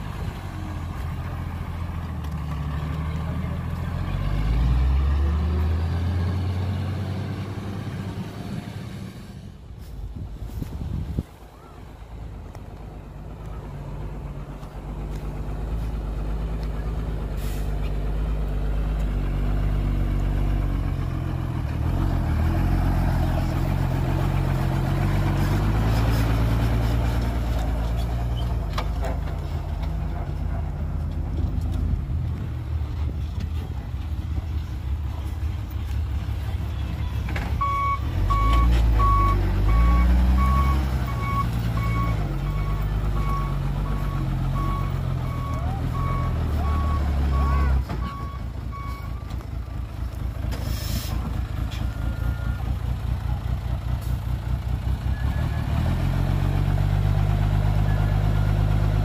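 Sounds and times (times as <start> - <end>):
heavy diesel engine revving: 0.0 - 9.6, 13.1 - 59.0
reversing alarm beeping: 37.6 - 49.3.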